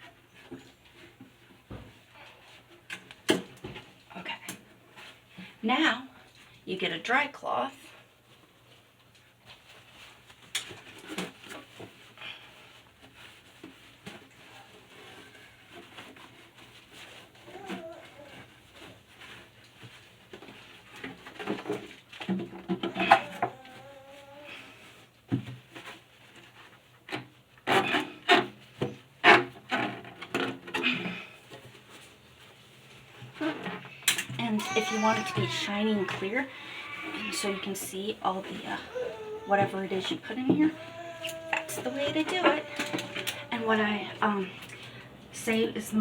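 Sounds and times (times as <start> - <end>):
cloth rubbing inside refrigerator: 8.2 - 22.2, 31.2 - 46.0
dry cloth wiping: 34.5 - 44.7.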